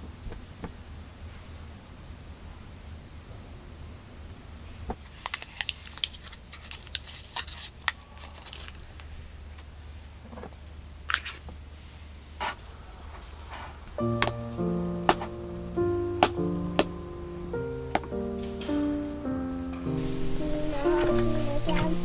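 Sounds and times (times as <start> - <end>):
sharp clicks and crinkles: 5.0 - 9.7.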